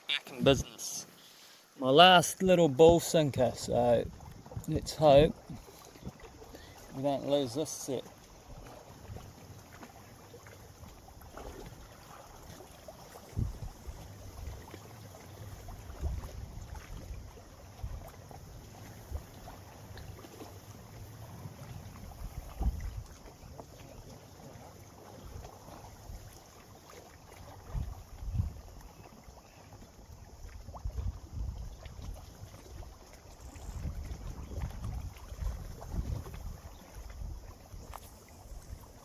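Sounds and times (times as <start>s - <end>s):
faint hiss of wind and water: 0.0s - 39.0s
wind buffeting microphone: 33.8s - 38.9s.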